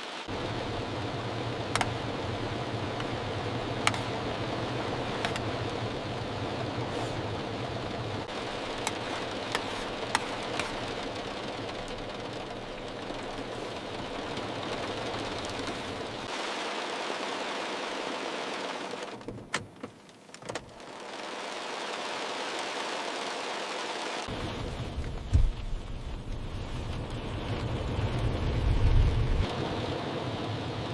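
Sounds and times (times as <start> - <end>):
heavy rain on car body: 0.0 - 30.9
sharp raindrop ticks: 1.6 - 6.2, 7.8 - 16.4, 24.2 - 29.5.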